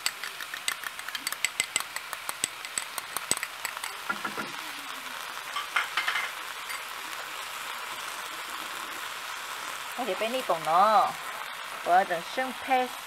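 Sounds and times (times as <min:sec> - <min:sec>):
spatula knocking wok: 0:00.0 - 0:04.6, 0:05.5 - 0:06.9
food sizzling in wok: 0:00.0 - 0:13.0.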